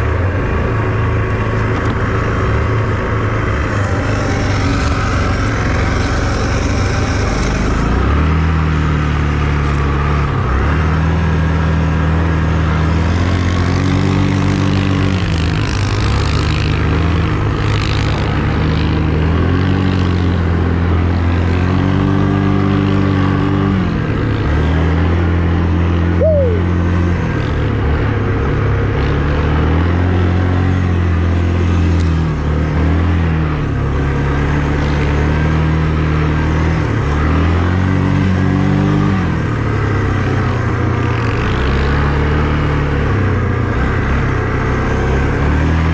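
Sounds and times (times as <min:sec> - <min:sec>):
vehicle engine revving: 0:00.0 - 0:45.9
falling squeal: 0:03.5 - 0:08.1.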